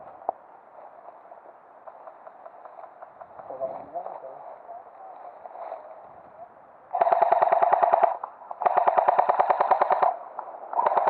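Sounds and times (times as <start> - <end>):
airsoft rifle full-auto bursts: 7.0 - 10.2, 10.8 - 11.0.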